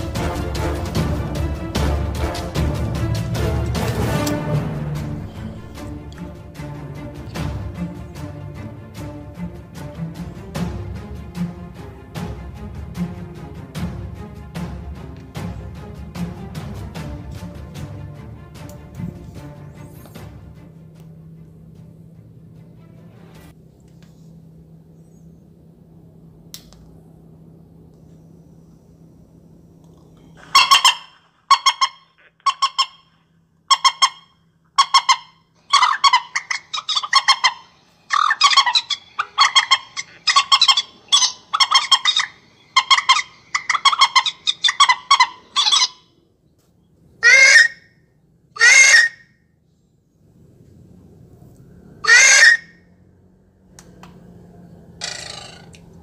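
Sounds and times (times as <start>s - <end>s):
harsh honking bird calls: 0.0s - 12.2s, 30.4s - 46.3s, 47.2s - 49.4s, 52.0s - 53.1s, 54.9s - 56.0s.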